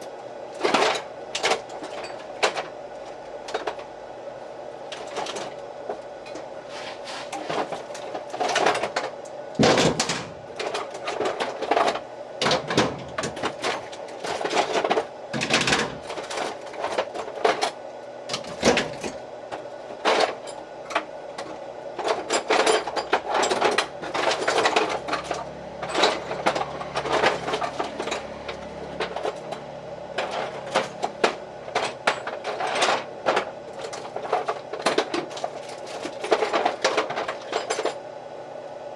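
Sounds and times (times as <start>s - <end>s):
metal parts and hand tools clinking: 0.0s - 2.7s, 22.0s - 38.0s
faint background hum: 0.0s - 38.9s.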